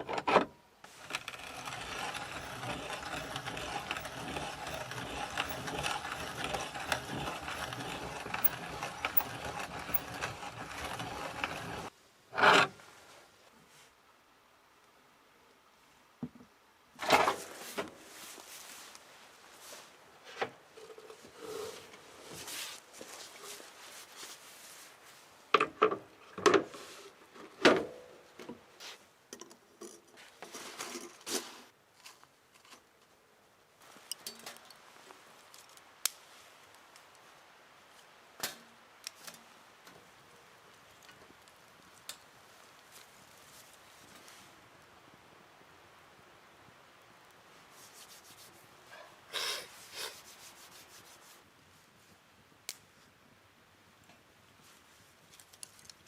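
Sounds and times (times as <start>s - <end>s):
rustling: 0.8s - 11.9s, 17.0s - 25.4s, 30.1s - 32.9s, 40.8s - 44.6s, 47.6s - 49.0s, 49.7s - 52.2s
rubbing brushing strokes: 0.9s - 11.9s, 21.3s - 25.3s, 47.7s - 48.9s, 49.7s - 51.5s.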